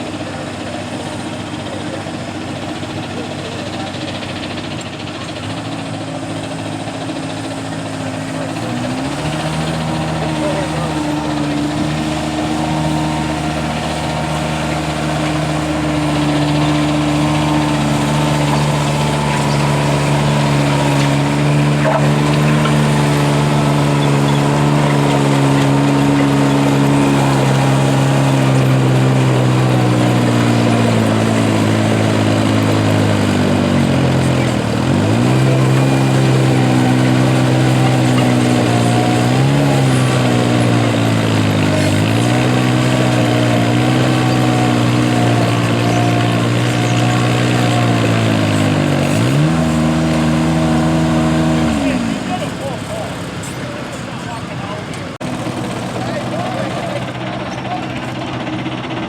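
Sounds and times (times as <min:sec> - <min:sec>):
garden tractor engine running: 0:00.0 - 0:59.0.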